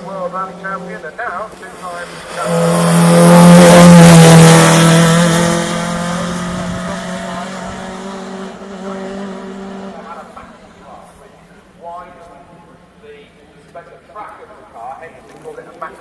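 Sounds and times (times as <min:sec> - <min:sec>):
rally car engine passing: 0:00.0 - 0:10.9.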